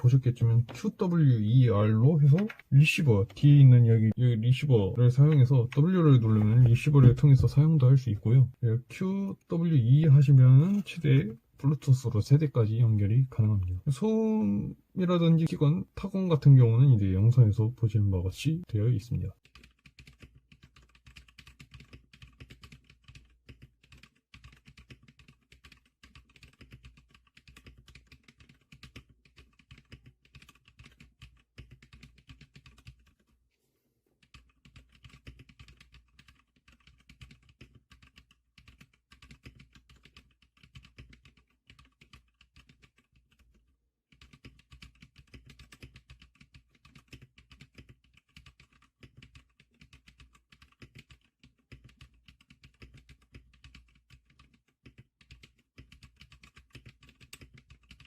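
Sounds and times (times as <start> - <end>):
rapid typing on mechanical keyboard: 0.0 - 3.9, 18.6 - 33.3, 34.2 - 58.0.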